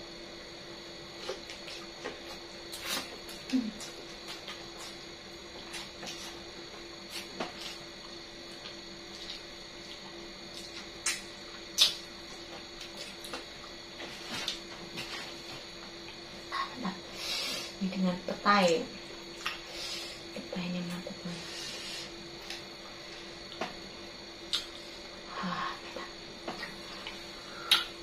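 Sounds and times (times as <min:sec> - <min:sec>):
steady hum: 0:00.0 - 0:28.0
mouth clicks and smacks: 0:26.6 - 0:27.9.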